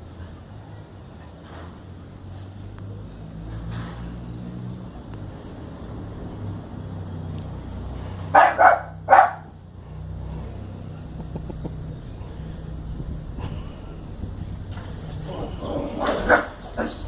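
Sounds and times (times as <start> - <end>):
steady low hum: 9.0 - 17.0.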